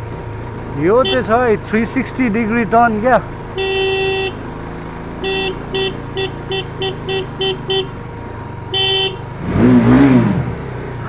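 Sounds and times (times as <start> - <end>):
engine hum: 0.0 - 11.0
vehicle horn honking: 1.0 - 1.4, 3.6 - 4.5, 5.2 - 8.0, 8.7 - 9.3.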